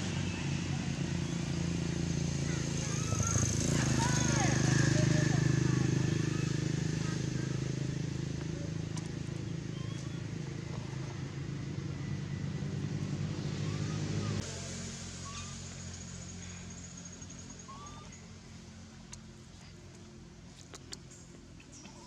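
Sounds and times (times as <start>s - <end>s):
motor engine running: 0.0s - 22.0s.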